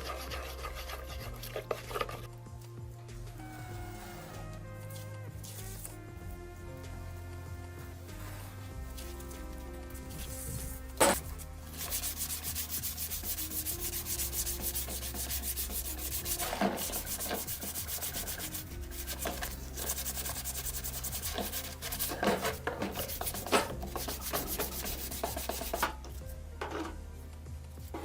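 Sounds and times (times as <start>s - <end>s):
hand sanding strokes: 0.0s - 2.3s, 8.0s - 25.9s.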